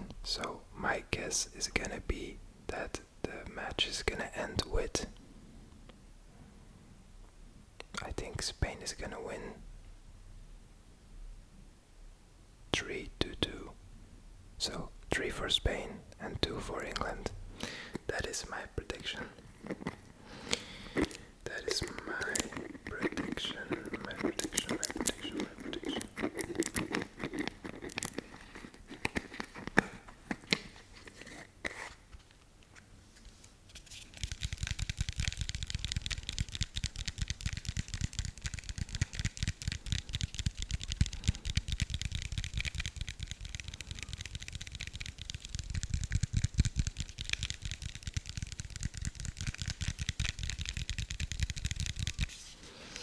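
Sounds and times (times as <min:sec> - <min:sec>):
rapid crinkling and scratching: 0:18.2 - 0:53.0.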